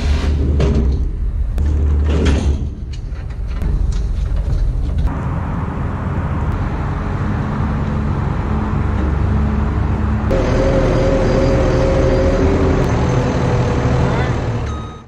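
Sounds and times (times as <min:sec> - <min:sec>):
truck engine and road rumble: 0:00.0 - 0:15.0
pair of whining tones: 0:09.0 - 0:15.0.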